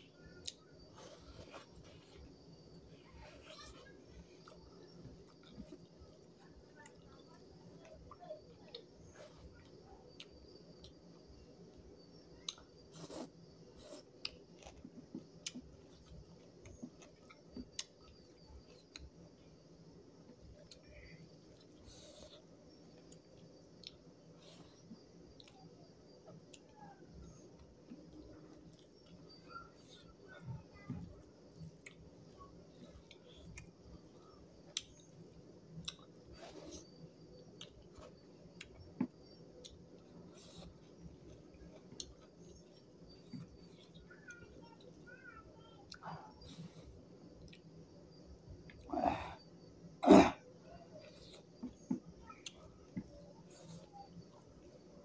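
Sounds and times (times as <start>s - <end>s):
chewing food: 0.4s - 20.8s, 21.4s - 44.2s.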